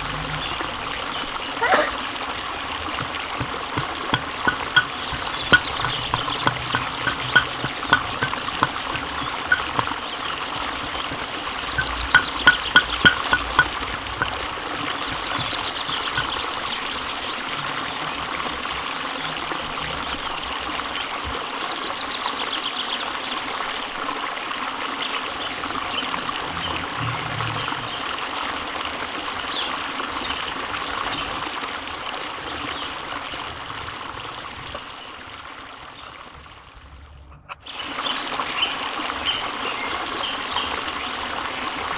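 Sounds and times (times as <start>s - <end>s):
spatula clicks against pan: 3.0s - 10.0s, 10.6s - 16.5s.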